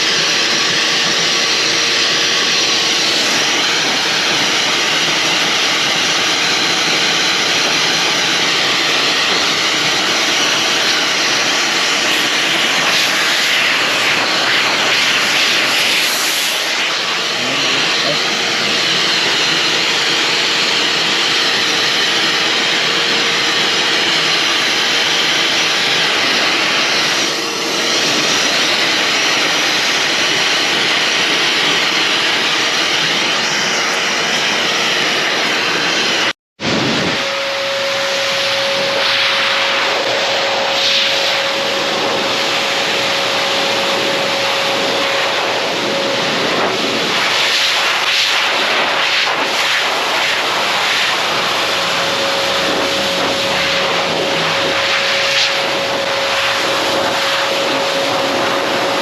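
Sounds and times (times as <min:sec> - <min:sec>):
hair dryer blowing: 0:00.0 - 0:59.0.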